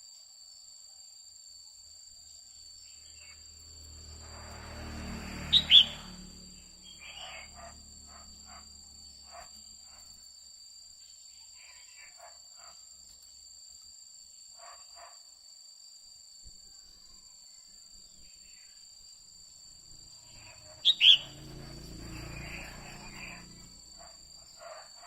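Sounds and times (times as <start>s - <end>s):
bird chirping: 2.8s - 8.6s, 20.0s - 24.7s
high-pitched two-tone drone: 3.2s - 8.9s, 20.2s - 23.9s.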